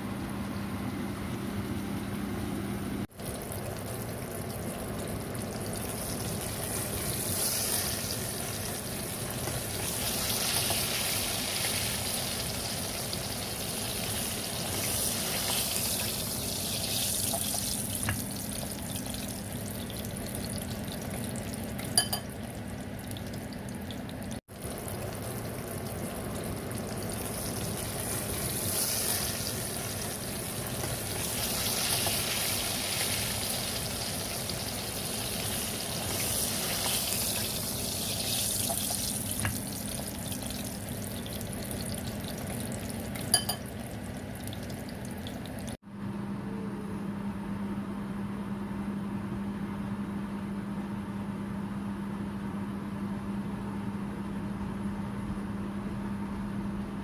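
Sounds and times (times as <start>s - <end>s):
chicken sizzling in hot oil: 3.1s - 45.8s.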